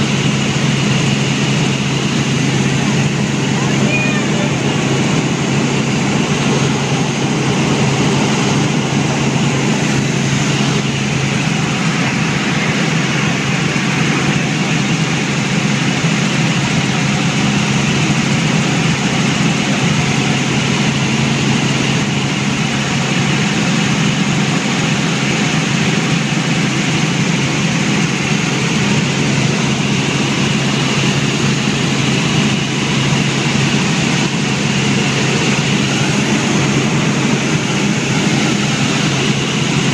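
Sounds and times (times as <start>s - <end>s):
helicopter engine and rotors: 0.0s - 39.9s.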